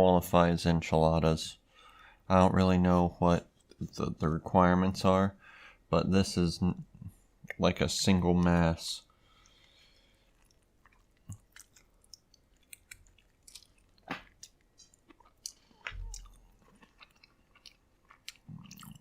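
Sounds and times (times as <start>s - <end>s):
chewing soft food: 9.2s - 19.0s.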